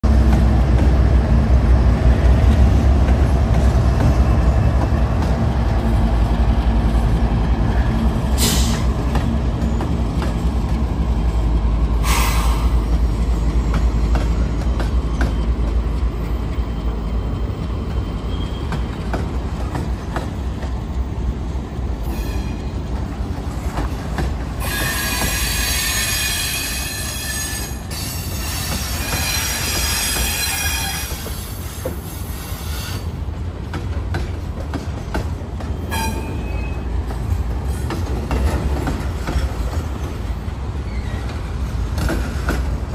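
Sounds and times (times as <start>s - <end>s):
diesel locomotive engine rumble: 0.0s - 42.9s
wheels squealing: 40.8s - 41.5s.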